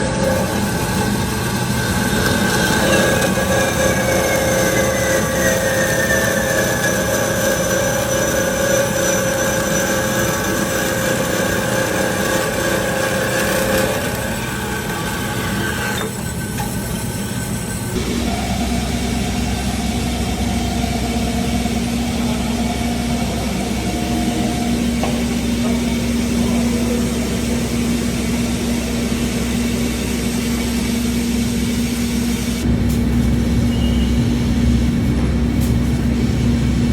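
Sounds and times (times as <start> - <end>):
bandsaw running: 0.0 - 31.1
laser cutter running: 0.0 - 36.9
machinery whine falling in pitch: 16.3 - 35.4.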